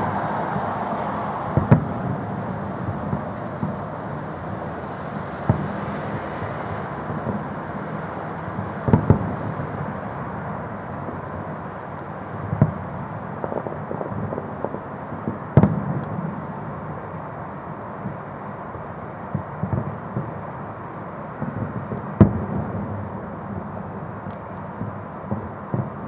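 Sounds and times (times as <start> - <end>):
small firework cracks: 0.0 - 7.6, 8.5 - 10.3, 11.1 - 17.2, 21.4 - 26.0
firework bangs: 0.0 - 18.3, 19.2 - 26.0
steady background noise: 0.0 - 26.0.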